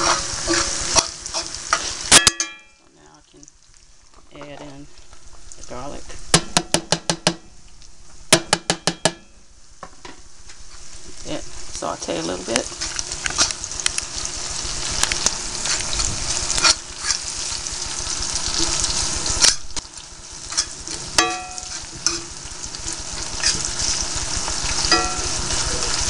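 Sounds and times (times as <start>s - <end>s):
vegetables sizzling in oil: 0.0s - 26.0s
utensil scraping and knocking pan: 20.5s - 24.0s.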